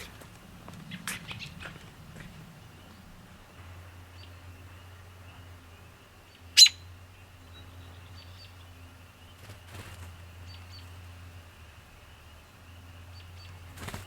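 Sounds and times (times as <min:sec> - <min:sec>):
bird chirp: 0:00.0 - 0:14.0
faint low hum: 0:00.0 - 0:14.0.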